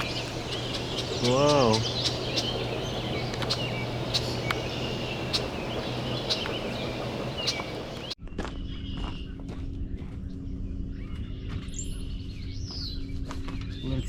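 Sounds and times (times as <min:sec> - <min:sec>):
sharp clicks: 0:00.0 - 0:06.6
birds chirping: 0:00.0 - 0:08.2
low steady hum: 0:00.0 - 0:08.2
steady rushing noise: 0:00.0 - 0:08.2.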